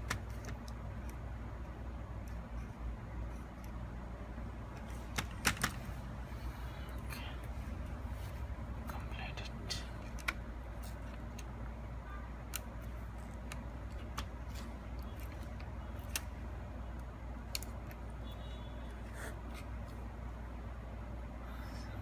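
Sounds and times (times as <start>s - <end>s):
steady low hum: 0.0s - 22.0s
plastic parts and screws clicking: 9.9s - 11.6s, 17.4s - 18.0s.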